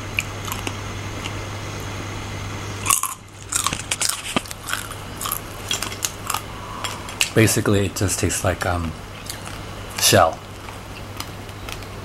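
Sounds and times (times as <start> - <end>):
crunching a hard shell: 0.0 - 1.4, 2.8 - 7.4, 9.1 - 12.0.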